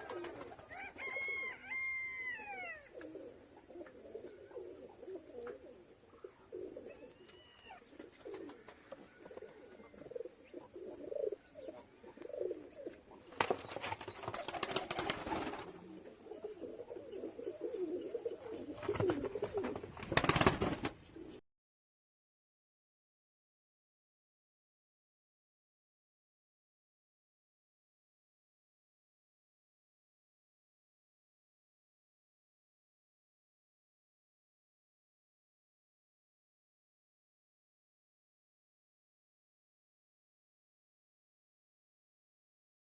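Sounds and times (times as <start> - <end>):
pigeons cooing: 0.0 - 21.4.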